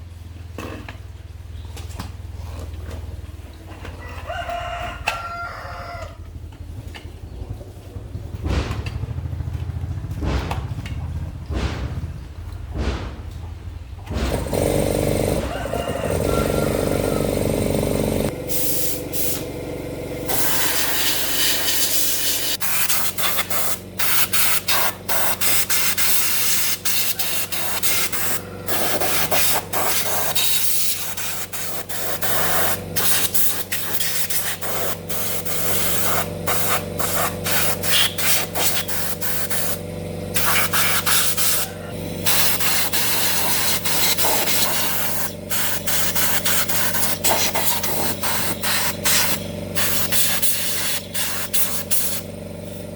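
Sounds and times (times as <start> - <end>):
hard spray hissing: 18.4 - 19.5, 20.2 - 52.8.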